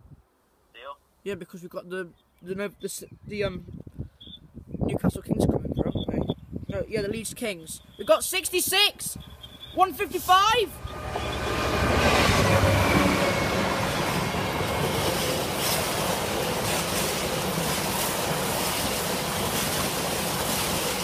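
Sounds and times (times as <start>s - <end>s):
diesel locomotive engine: 7.0s - 21.0s
freight wagons rolling on rails: 7.2s - 21.0s.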